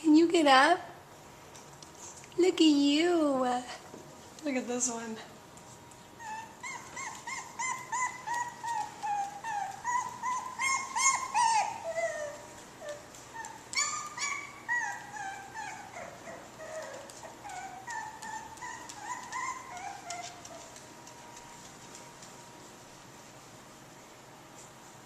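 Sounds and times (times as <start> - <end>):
puppies whimpering and squeaking: 6.1 - 21.6.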